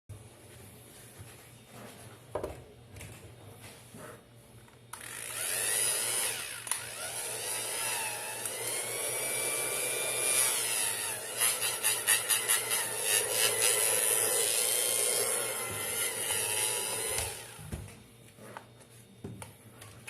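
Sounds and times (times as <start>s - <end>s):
hair dryer running: 5.0s - 17.8s.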